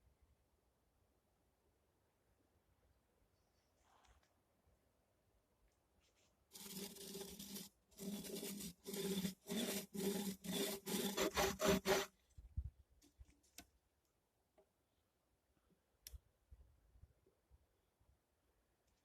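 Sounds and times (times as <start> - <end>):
tool rasping through wood: 6.5 - 12.1.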